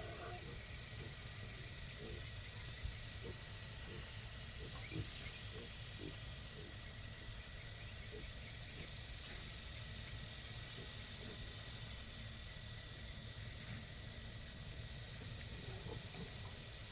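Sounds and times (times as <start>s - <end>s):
pigs grunting: 0.0s - 1.3s, 1.9s - 2.4s, 3.1s - 7.3s, 8.0s - 9.0s, 10.7s - 11.5s, 15.6s - 16.5s
steady background hiss: 0.0s - 16.9s.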